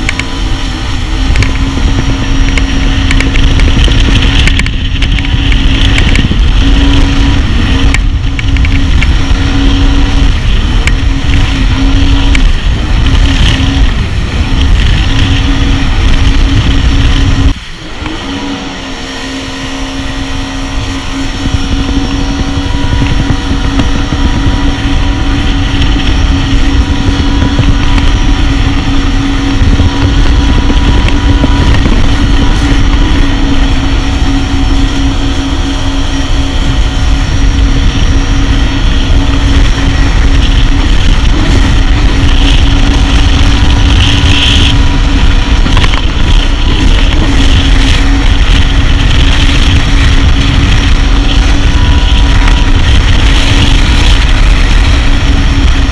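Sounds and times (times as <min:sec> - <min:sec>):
jet ski engine running: 0:00.0 - 0:55.9.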